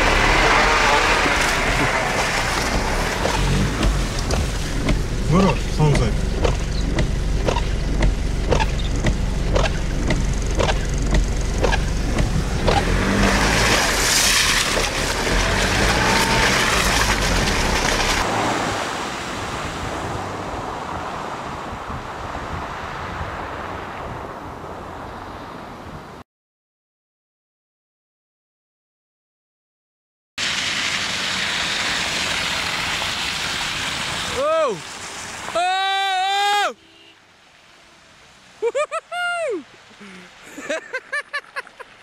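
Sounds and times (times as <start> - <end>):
vehicle engine and tyre drone: 0.0 - 26.2, 30.4 - 38.7
regular ticking: 2.7 - 13.8.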